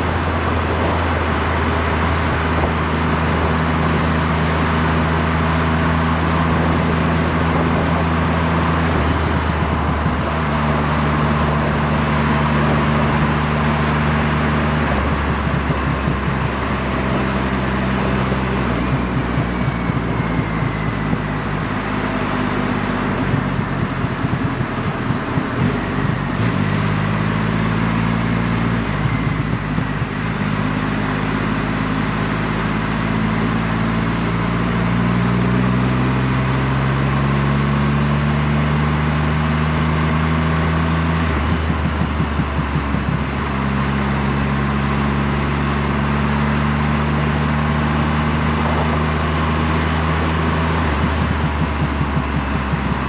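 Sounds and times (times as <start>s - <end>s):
wind noise: 0.0s - 31.7s, 40.5s - 43.9s, 48.0s - 53.0s
motorcycle engine cruising: 0.0s - 53.0s.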